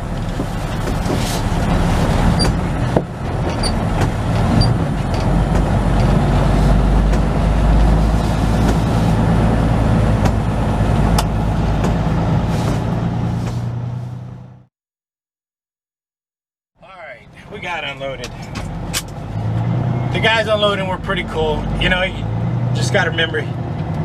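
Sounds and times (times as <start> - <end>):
truck diesel engine running: 0.0 - 14.7.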